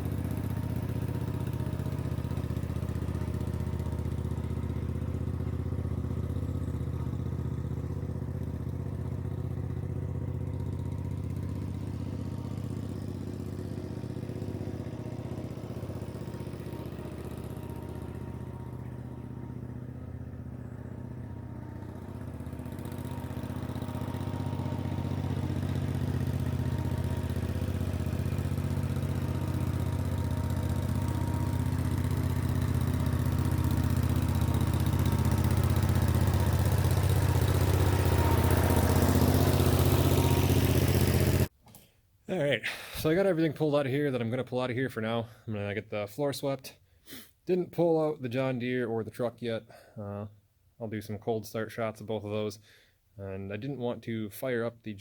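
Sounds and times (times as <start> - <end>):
engine idling with open exhaust: 0.0 - 41.5.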